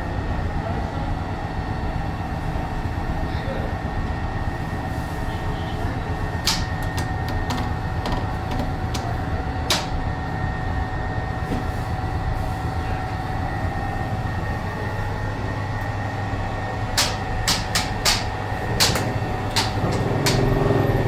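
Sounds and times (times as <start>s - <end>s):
steady machine hum: 0.0s - 21.0s
sharp clicks or knocks: 17.0s - 20.5s.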